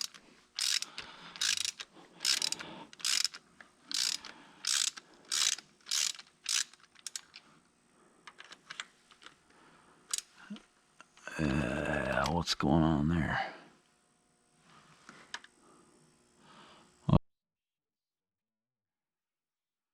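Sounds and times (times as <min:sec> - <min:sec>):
ratchet wrench clicking: 0:00.0 - 0:07.4, 0:10.1 - 0:10.3.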